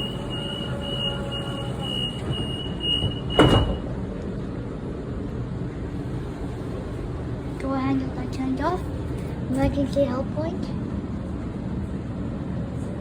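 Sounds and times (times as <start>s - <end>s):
high pulsing beep: 0.0s - 3.8s
train hum: 0.0s - 13.0s
sliding doors thumping shut: 1.7s - 3.9s.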